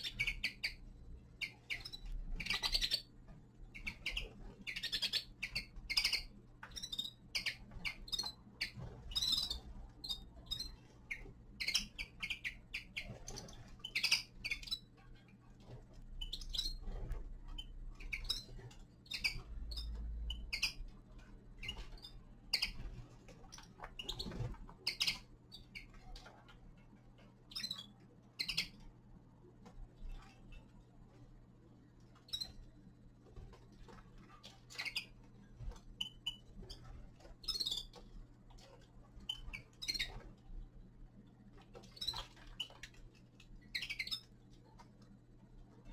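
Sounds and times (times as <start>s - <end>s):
finches chirping: 0.0s - 15.4s, 16.1s - 20.9s, 21.5s - 26.5s, 27.4s - 29.0s, 32.2s - 33.2s, 34.4s - 40.6s, 41.8s - 44.5s
faint low hum: 0.0s - 45.9s.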